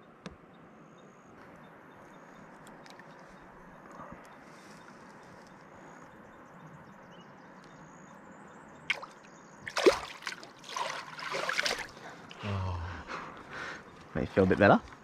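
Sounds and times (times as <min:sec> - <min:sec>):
water sloshing: 0:08.9 - 0:12.4
loud water splash: 0:09.7 - 0:11.9.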